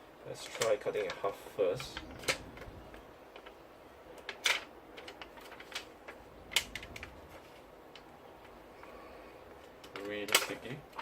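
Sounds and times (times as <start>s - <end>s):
handling noises: 0.6s - 8.9s.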